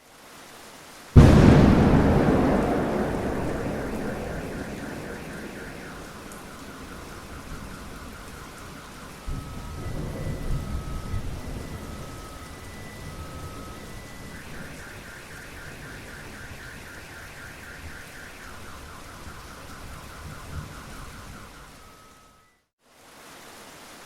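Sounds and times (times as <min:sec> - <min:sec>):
steady rain: 0:00.0 - 0:24.0
thunder rumbling: 0:01.2 - 0:14.0.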